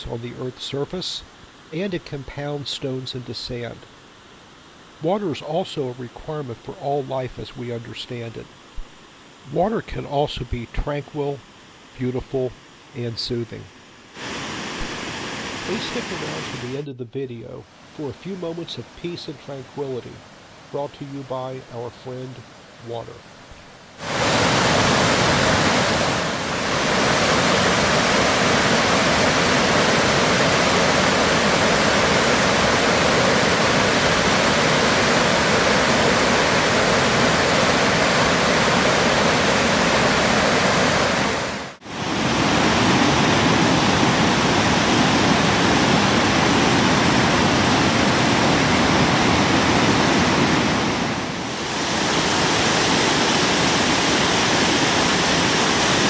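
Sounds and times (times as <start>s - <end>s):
waterfall rushing: 14.2s - 16.8s, 23.9s - 56.0s.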